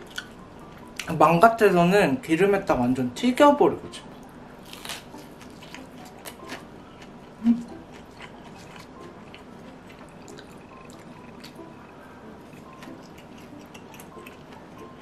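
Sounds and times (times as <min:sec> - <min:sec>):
crunchy chewing: 0:04.6 - 0:15.0.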